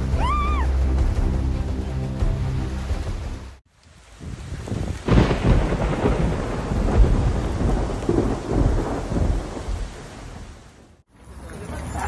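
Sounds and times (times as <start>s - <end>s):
heavy rain: 0.0s - 12.0s
thunder clap and rumbling: 4.2s - 11.0s.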